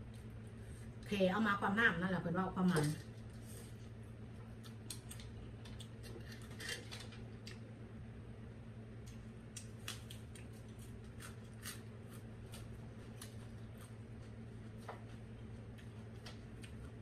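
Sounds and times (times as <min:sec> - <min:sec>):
steady low hum: 0:00.0 - 0:17.0
chewing raw greens: 0:09.5 - 0:17.0.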